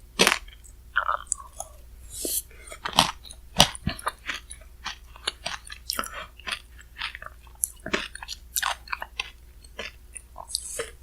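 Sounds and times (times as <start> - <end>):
crunchy chewing of ice: 0.2 - 1.7, 2.6 - 11.0.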